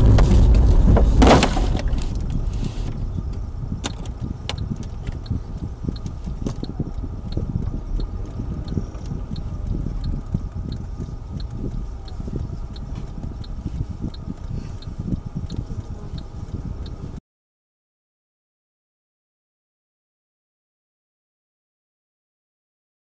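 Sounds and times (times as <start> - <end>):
loud burst of noise: 0.0 - 3.0
car road and engine noise: 0.0 - 17.2
faint regular ticking: 2.1 - 17.2.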